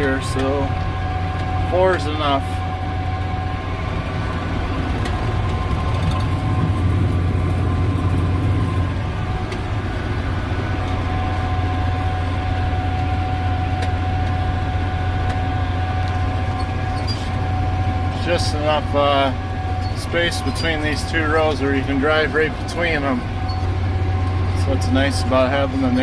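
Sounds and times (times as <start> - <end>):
tractor engine running under load: 0.0 - 26.0.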